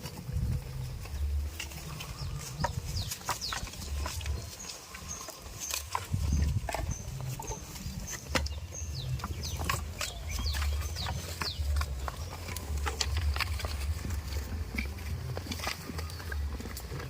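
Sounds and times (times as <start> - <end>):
low rumble: 0.0 - 4.7, 6.0 - 17.0.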